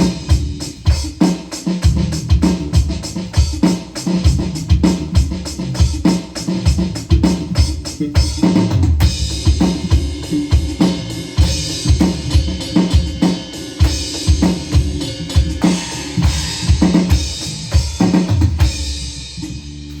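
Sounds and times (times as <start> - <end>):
bass drum thumps: 0.0 - 1.2, 1.8 - 3.6, 4.2 - 20.0
cymbals: 9.0 - 20.0.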